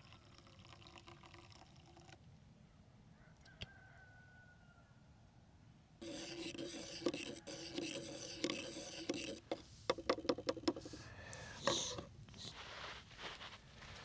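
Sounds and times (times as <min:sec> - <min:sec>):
rasping scraping: 0:06.0 - 0:11.0.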